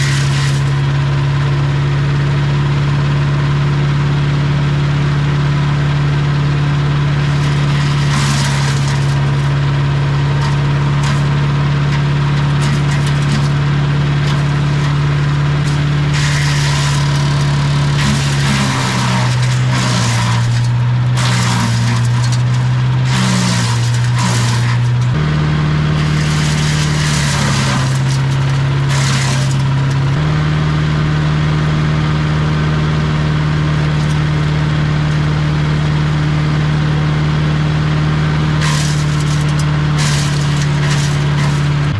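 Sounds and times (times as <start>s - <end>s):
loud crackling chipping of branches: 0.0s - 0.9s, 7.0s - 30.4s, 38.4s - 41.9s
wood chipper engine running: 0.0s - 41.9s.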